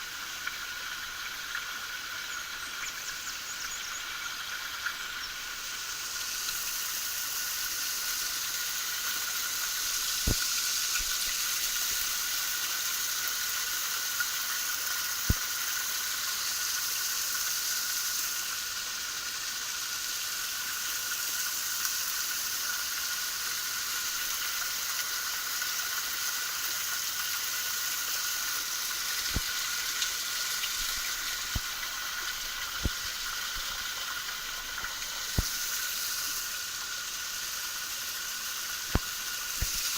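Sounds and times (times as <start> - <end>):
waterfall splashing: 28.3 - 39.9
faint clicks: 38.8 - 39.9.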